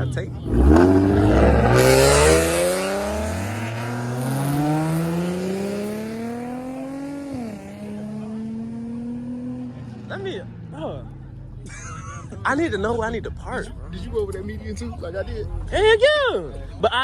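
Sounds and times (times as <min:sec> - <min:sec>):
car engine accelerating hard: 0:00.0 - 0:10.5.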